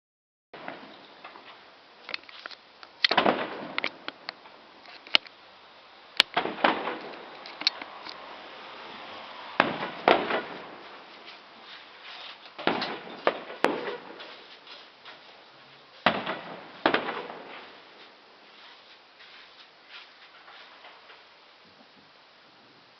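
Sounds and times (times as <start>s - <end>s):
fireworks bangs: 0.6s - 1.7s, 3.0s - 4.7s, 6.2s - 18.6s
sharp firework cracks: 2.9s - 5.3s, 6.2s - 8.4s, 9.3s - 11.5s, 12.4s - 15.2s, 16.0s - 18.2s.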